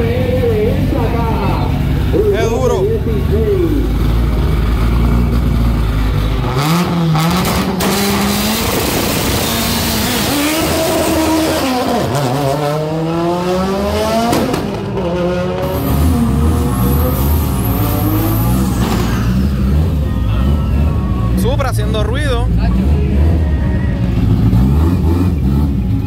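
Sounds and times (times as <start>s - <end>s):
second car engine running: 0.0s - 26.0s
car engine revving through gears: 4.3s - 20.0s, 22.6s - 26.0s.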